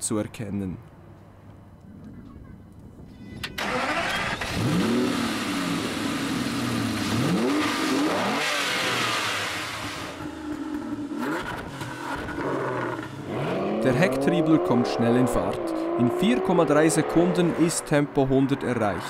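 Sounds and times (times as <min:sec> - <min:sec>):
car engine revving: 0:03.6 - 0:18.2.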